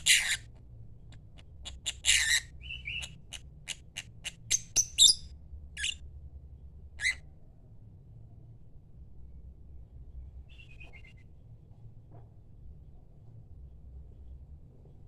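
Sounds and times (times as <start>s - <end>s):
lovebird chirping and squawking: 0.0s - 0.5s, 1.6s - 5.2s, 7.0s - 7.2s.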